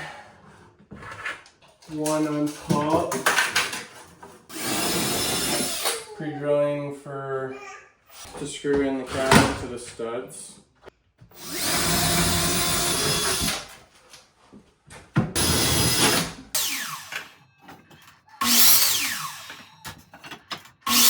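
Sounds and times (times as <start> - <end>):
cordless drill whining: 4.5 - 6.1, 11.4 - 13.7, 15.4 - 17.4, 18.4 - 20.0.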